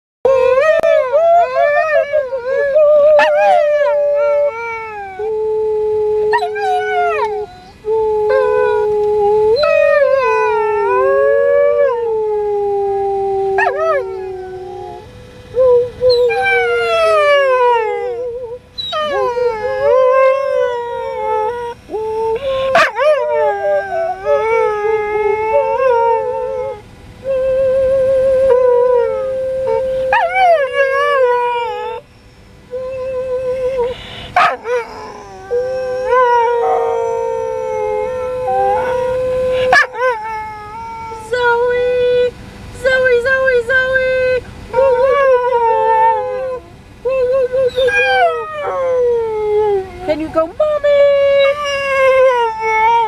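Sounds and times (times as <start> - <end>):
dog howling: 0.3 - 32.0, 32.7 - 42.3, 42.9 - 53.0
person howling: 32.8 - 41.6.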